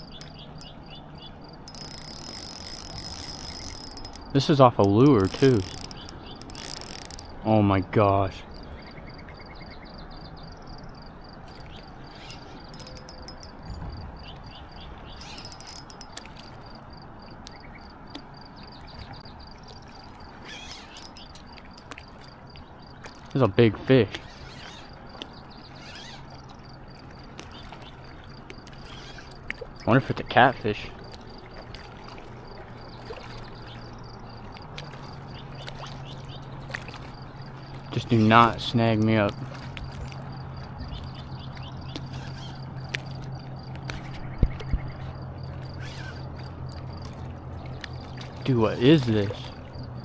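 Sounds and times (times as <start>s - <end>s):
faint rapid high ticking: 0.0s - 7.5s, 11.5s - 13.6s, 15.2s - 16.5s, 20.8s - 21.9s
insects chirping: 0.0s - 50.0s
low steady hum: 0.0s - 50.0s
scattered clicks: 1.7s - 7.4s, 11.5s - 13.6s, 15.2s - 16.5s.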